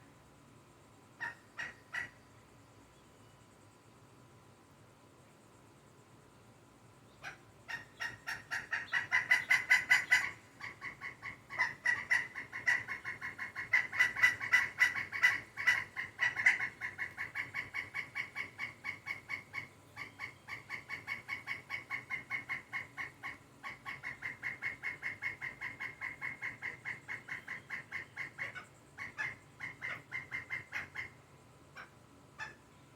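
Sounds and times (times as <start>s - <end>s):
woodpecker calling: 1.2s - 2.2s, 7.2s - 32.8s.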